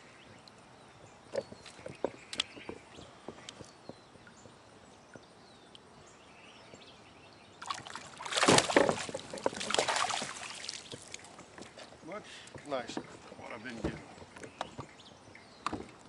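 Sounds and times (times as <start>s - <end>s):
water splashing beside kayak: 7.6s - 11.8s.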